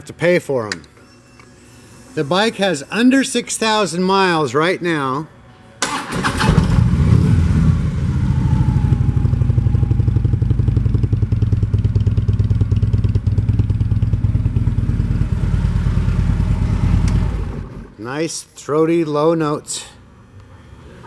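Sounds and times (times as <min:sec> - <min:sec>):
motorcycle engine idling: 0:06.3 - 0:18.0.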